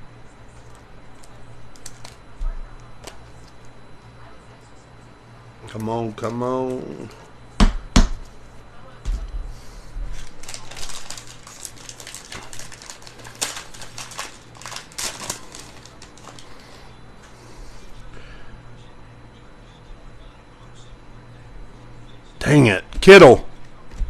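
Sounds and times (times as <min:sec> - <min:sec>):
card packs crinkling and tearing: 0:00.6 - 0:02.2, 0:10.1 - 0:16.9.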